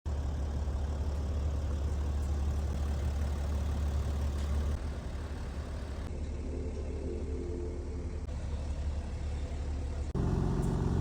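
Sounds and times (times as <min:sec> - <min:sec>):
car engine idling: 0:00.1 - 0:06.1, 0:08.3 - 0:11.0.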